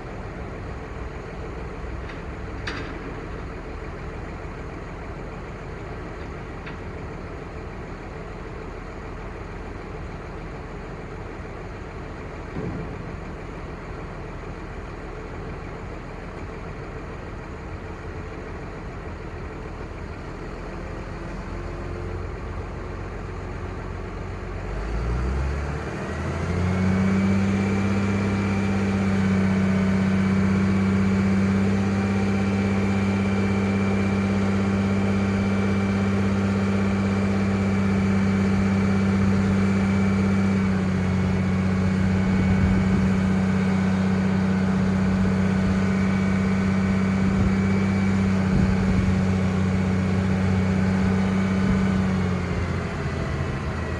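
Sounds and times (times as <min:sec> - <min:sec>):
diesel engine idling and revving: 0:00.0 - 0:53.9
high turbo whine: 0:24.8 - 0:53.9.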